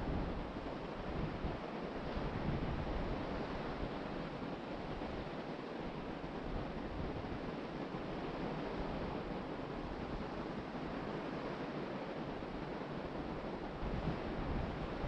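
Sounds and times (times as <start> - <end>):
wind buffeting microphone: 0.0 - 7.6, 13.0 - 15.0.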